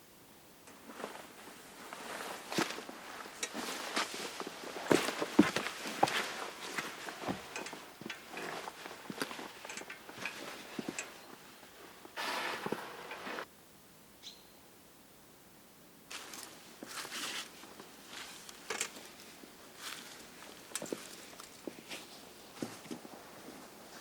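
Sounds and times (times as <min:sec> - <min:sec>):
footsteps in dry leaves: 0:00.9 - 0:10.9, 0:12.2 - 0:13.4, 0:16.1 - 0:22.4.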